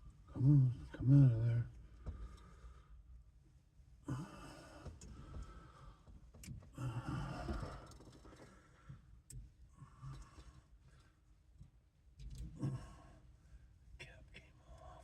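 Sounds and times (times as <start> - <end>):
man breathing heavily: 4.1 - 9.2.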